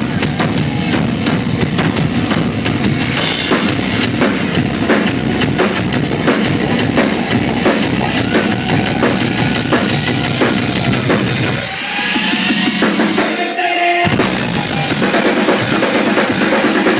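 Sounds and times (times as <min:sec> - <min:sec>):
bass drum strokes: 0:00.0 - 0:11.6.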